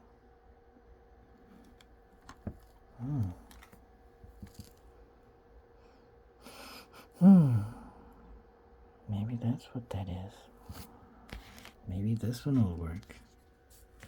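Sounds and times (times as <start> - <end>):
person humming: 2.9 - 3.5, 7.1 - 8.0.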